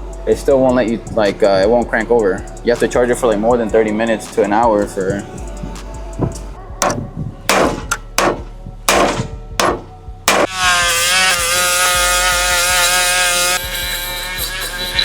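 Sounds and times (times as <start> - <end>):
hand tools knocking on metal: 6.8 - 10.5.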